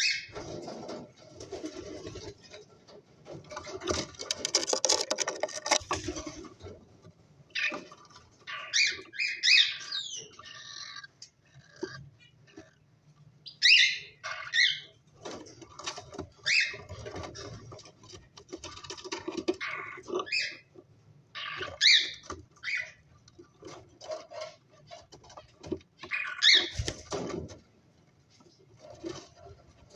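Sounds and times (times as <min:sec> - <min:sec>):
small clicks and scratching: 0:00.4 - 0:08.6, 0:10.3 - 0:12.9, 0:15.1 - 0:29.9
cockatiels chirping: 0:08.5 - 0:12.8, 0:13.4 - 0:14.9, 0:16.4 - 0:16.8, 0:19.6 - 0:20.7, 0:21.4 - 0:23.0, 0:26.0 - 0:26.8.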